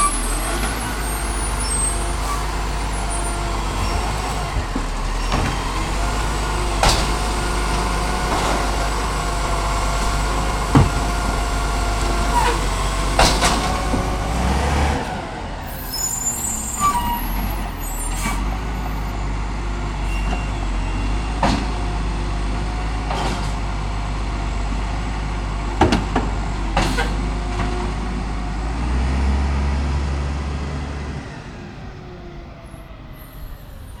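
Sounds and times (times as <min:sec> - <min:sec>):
high squeal: 0:00.0 - 0:04.3, 0:15.7 - 0:19.2
garbage truck engine running: 0:00.0 - 0:34.0.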